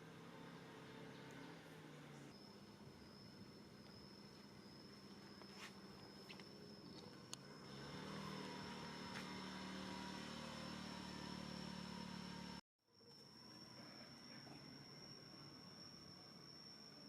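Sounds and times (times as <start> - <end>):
faint engine hum: 0.0 - 17.0
thin high whine: 10.4 - 17.0.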